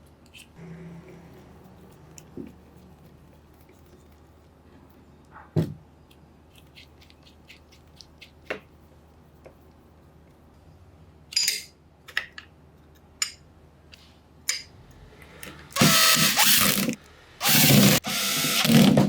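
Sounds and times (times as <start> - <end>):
drill motor whining: 15.8 - 19.0.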